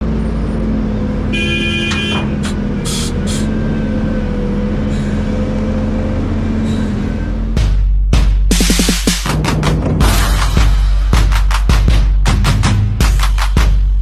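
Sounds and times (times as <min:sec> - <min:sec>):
heavy diesel machinery running: 0:00.0 - 0:09.0.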